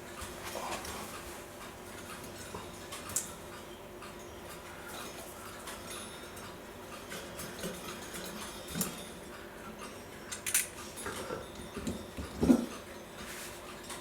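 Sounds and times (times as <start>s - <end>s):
metallic clicks of clock parts: 9.8s - 11.2s.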